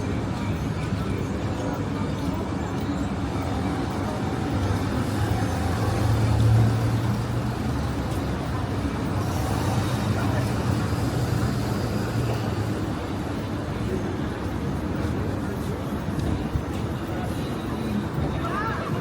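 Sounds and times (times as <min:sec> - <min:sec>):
road noise: 0:00.0 - 0:19.0
vehicle engine hum: 0:03.2 - 0:13.9.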